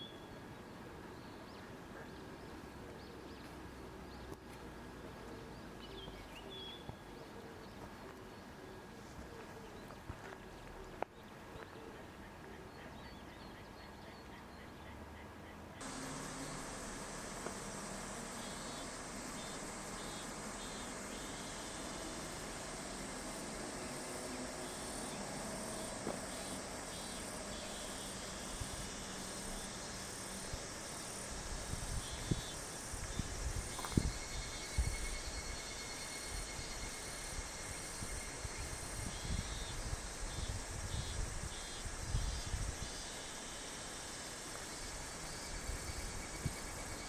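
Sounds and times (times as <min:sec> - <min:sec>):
insects calling: 0:15.8 - 0:47.0
outdoor hiss: 0:15.8 - 0:47.0.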